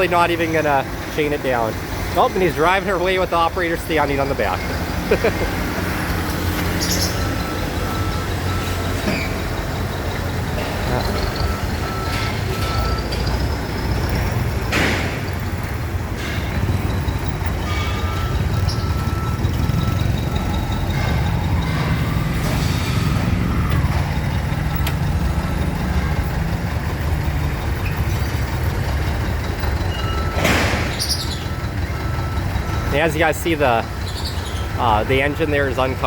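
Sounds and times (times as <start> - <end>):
truck engine running under load: 0.0 - 36.0.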